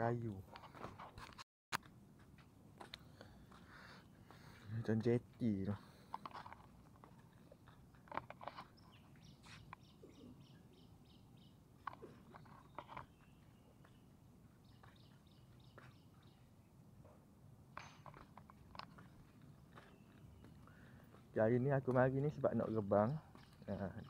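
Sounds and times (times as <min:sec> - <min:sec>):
small bird chirping: 0:08.5 - 0:16.6, 0:19.0 - 0:21.1, 0:21.7 - 0:24.0.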